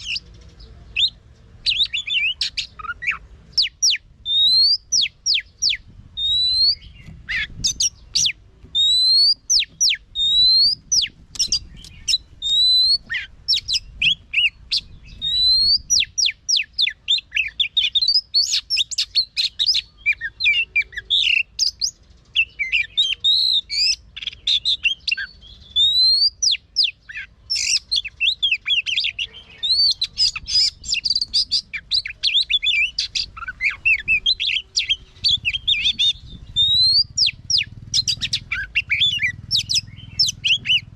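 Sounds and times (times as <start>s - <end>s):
bird singing rising whistles: 1.0s - 40.9s
bird fast warble: 29.7s - 40.9s.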